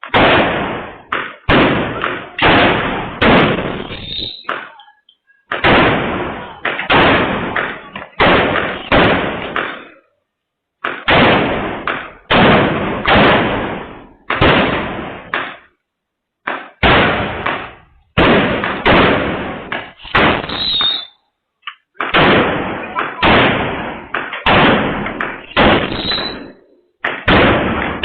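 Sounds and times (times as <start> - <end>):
loud bangs or knocks: 10.8 - 15.7, 16.5 - 20.6, 22.0 - 28.0.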